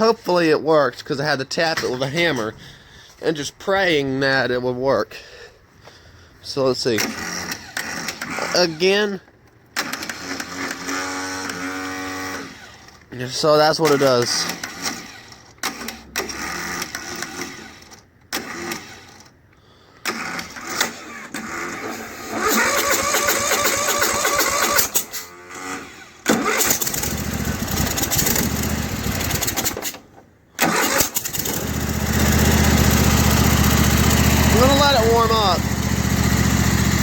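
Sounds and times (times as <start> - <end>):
electric starter cranking engine: 6.9 - 13.1, 13.8 - 37.0
mower engine running: 20.2 - 37.0.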